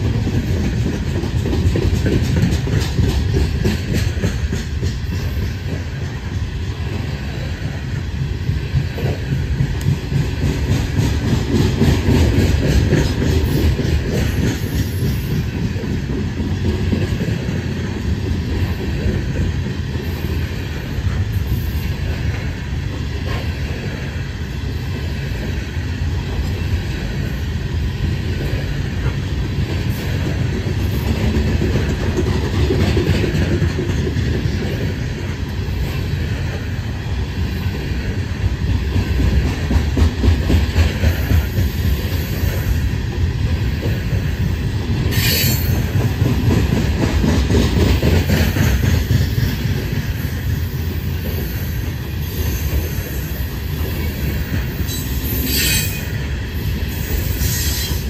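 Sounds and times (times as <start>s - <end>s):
wheels clicking over rail joints: 0.0s - 24.1s, 28.0s - 36.7s
train wheels rumbling on rails: 0.0s - 58.0s.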